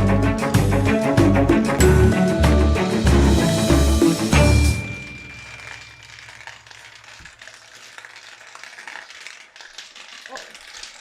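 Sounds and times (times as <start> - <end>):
marbles clicking on wooden run: 5.2 - 11.0.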